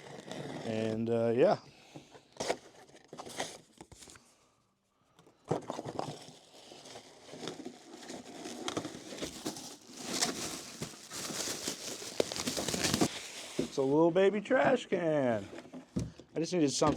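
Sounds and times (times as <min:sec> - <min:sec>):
packaging tearing and crinkling: 0:05.8 - 0:13.8.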